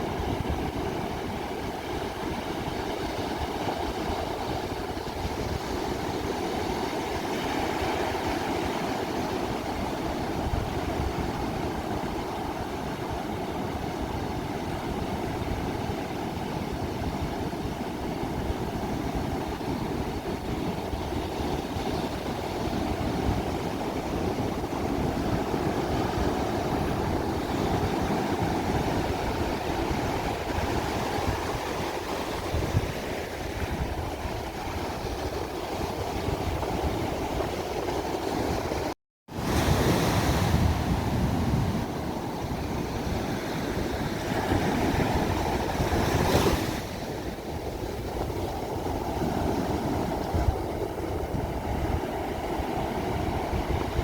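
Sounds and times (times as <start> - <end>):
ocean waves washing on shore: 0.0 - 54.0.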